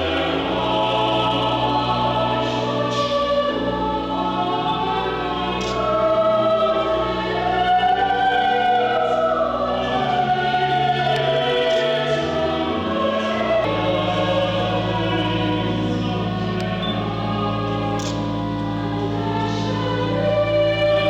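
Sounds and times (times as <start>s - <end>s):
choir singing in harmony: 0.0s - 21.0s
sustained low chords: 9.4s - 21.0s.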